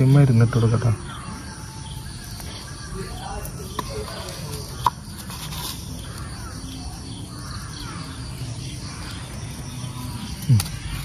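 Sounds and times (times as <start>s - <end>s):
faint bird calls: 0.0s - 11.0s
outdoor background noise: 0.0s - 11.0s.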